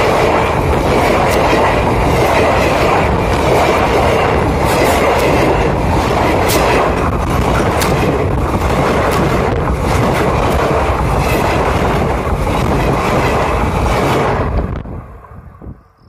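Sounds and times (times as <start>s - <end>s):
wheels clacking on rail joints: 0.0s - 14.7s
train wheels rumbling on rails: 0.0s - 16.0s.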